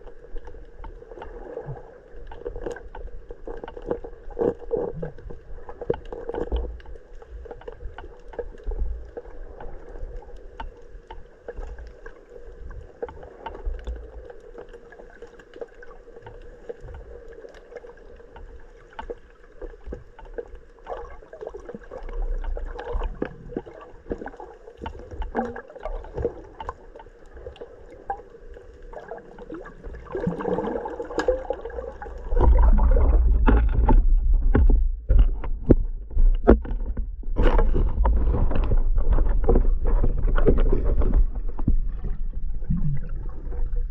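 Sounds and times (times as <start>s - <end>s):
muffled underwater gurgling: 20.9s - 43.9s.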